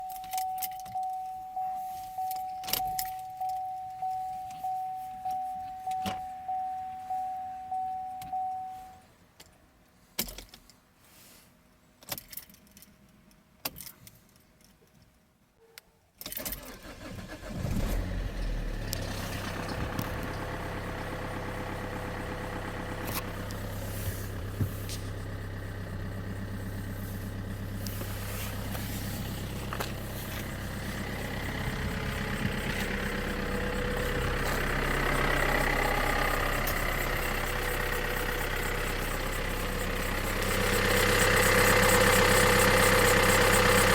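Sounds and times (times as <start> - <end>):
car warning chime pinging: 0.0 - 9.0, 19.7 - 43.9
diesel engine starting and idling: 16.3 - 43.9.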